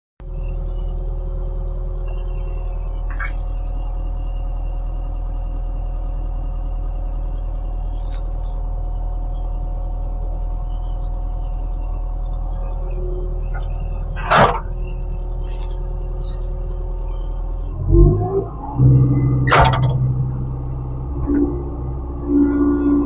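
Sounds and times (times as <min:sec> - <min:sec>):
diesel engine droning: 0:00.2 - 0:23.0.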